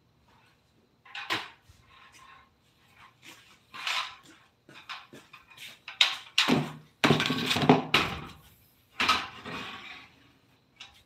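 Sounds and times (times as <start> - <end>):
hard objects knocking and clattering: 3.9 - 8.4.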